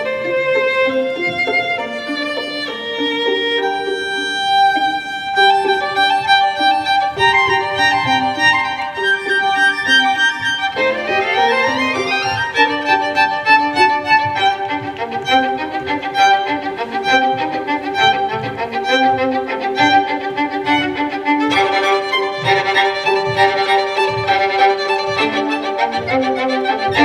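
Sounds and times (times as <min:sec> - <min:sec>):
violin-led instrumental music: 0:00.0 - 0:27.0.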